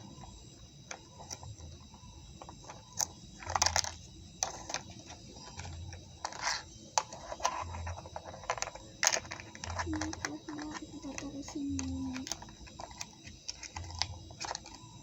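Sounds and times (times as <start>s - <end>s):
plastic toy pieces clattering: 2.6s - 14.9s.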